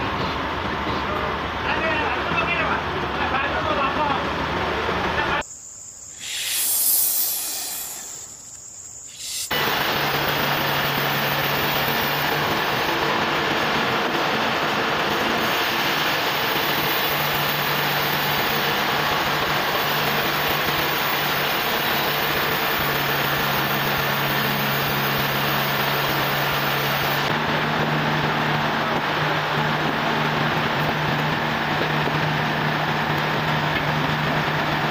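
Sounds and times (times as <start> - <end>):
sawmill engine running: 9.2 - 34.9.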